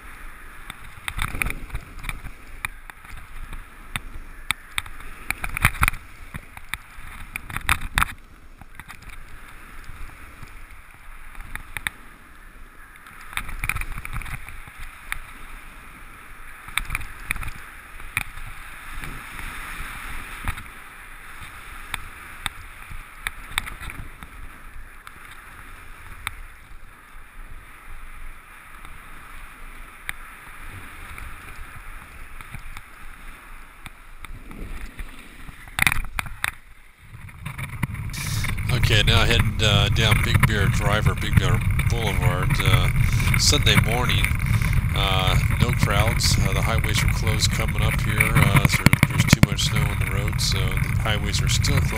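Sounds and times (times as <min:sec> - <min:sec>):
wind buffeting microphone: 0:34.2 - 0:51.9
skis scraping over snow: 0:37.0 - 0:51.9.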